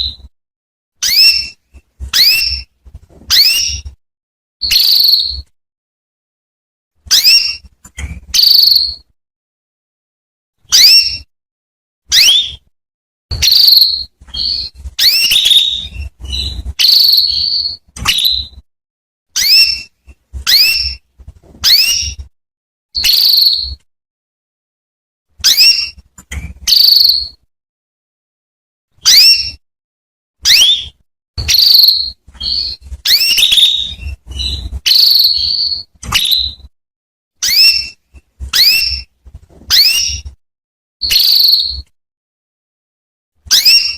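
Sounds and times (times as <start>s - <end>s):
canary chirping: 0.0s - 0.3s, 1.0s - 4.0s, 4.6s - 5.5s, 7.0s - 9.1s, 10.6s - 11.3s, 12.1s - 12.7s, 13.3s - 18.6s, 19.4s - 22.3s, 23.0s - 23.8s, 25.4s - 27.4s, 29.0s - 29.6s, 30.4s - 36.7s, 37.4s - 40.4s, 41.0s - 41.9s, 43.5s - 43.9s.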